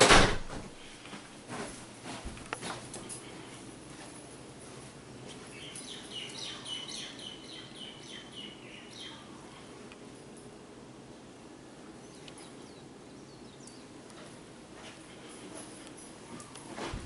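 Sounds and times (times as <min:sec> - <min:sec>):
faint steady hum: 0:00.0 - 0:17.0
bird chirping rapidly: 0:05.6 - 0:09.3.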